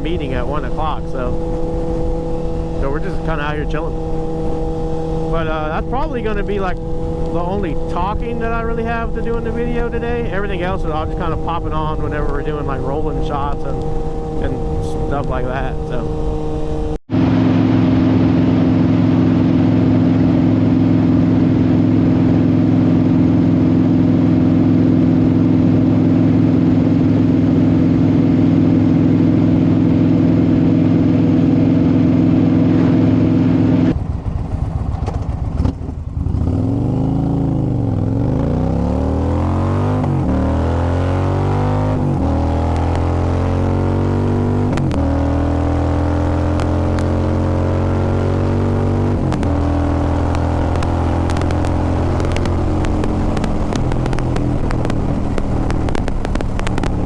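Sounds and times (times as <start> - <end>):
motorcycle engines running: 0.0 - 57.0.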